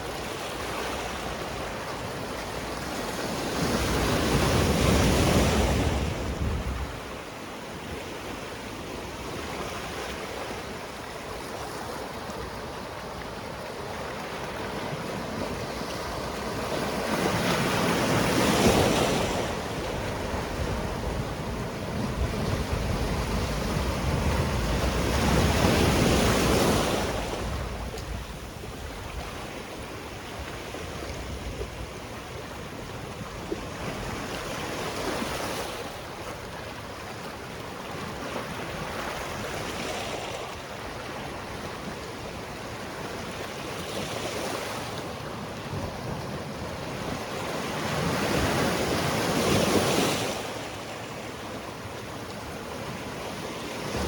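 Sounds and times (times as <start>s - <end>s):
waves breaking on rocky shore: 9.5s - 29.7s.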